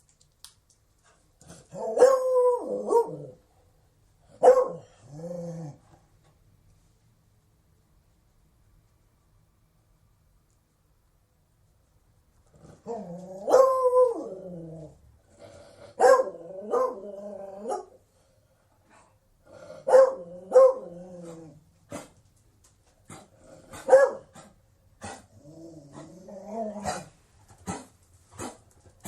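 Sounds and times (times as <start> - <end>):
dog barking in drawn-out calls: 4.4 - 4.9, 16.0 - 17.0, 19.9 - 20.8, 23.7 - 24.4.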